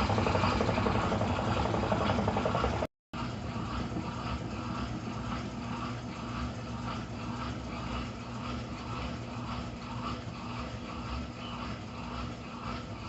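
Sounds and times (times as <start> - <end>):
pulsing whoosh: 0.0 - 2.9
washing machine motor hum: 0.0 - 13.0.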